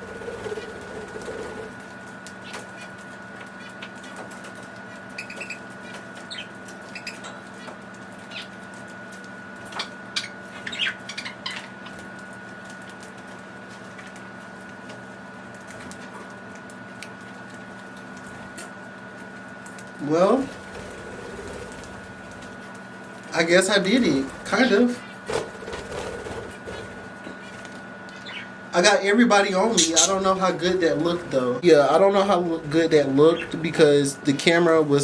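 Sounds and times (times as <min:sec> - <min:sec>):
wings flapping: 0:00.0 - 0:28.4
budgies chirping: 0:05.1 - 0:08.5, 0:09.8 - 0:11.9, 0:23.4 - 0:25.2, 0:25.9 - 0:31.6, 0:32.3 - 0:33.8.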